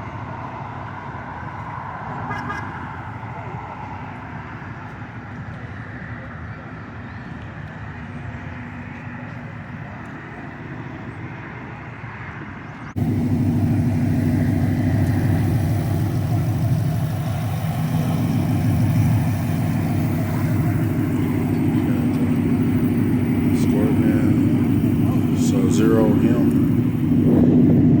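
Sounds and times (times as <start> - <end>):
faint engine hum: 0.0 - 28.0
car engine idling: 13.0 - 28.0.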